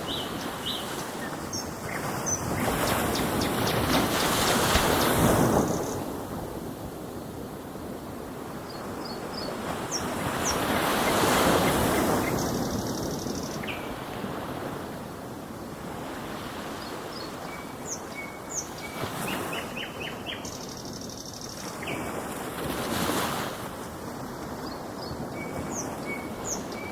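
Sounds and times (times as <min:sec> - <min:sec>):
birds chirping: 0:00.0 - 0:06.0, 0:08.7 - 0:14.0, 0:16.8 - 0:22.0, 0:24.6 - 0:26.9
ocean waves washing in: 0:00.0 - 0:26.9.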